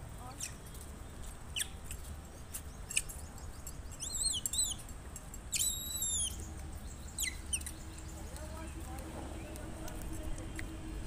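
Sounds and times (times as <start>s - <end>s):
high-pitched bird calls: 0.2s - 0.8s, 1.5s - 4.9s, 5.5s - 9.7s.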